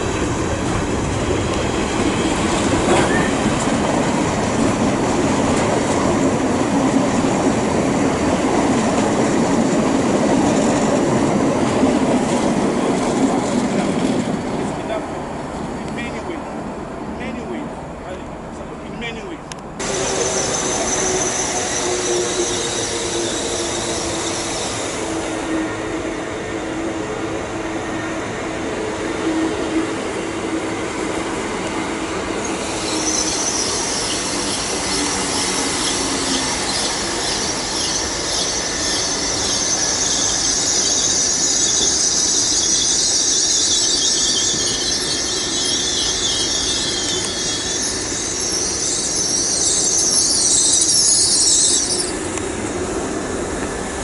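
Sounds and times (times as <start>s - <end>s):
train rumbling: 0.0s - 54.0s
high-pitched wheel squeal: 2.8s - 3.4s, 19.8s - 26.0s, 32.4s - 52.4s.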